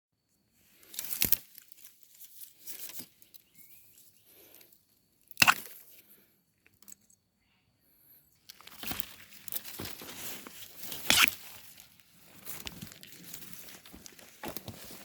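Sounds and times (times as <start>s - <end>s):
dry plants rustling: 0.6s - 4.8s, 8.4s - 15.0s
dry plants crackling: 0.7s - 4.5s, 8.4s - 15.0s.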